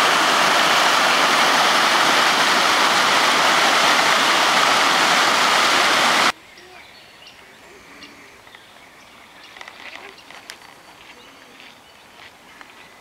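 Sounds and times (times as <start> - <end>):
faint outdoor hiss: 0.0 - 13.0
birds chirping: 6.2 - 13.0.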